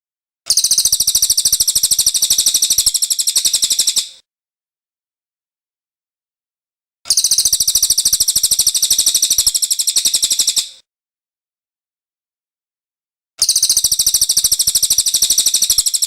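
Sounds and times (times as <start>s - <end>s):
bird singing a fast trill: 0.5s - 4.1s, 7.1s - 10.8s, 13.4s - 16.0s.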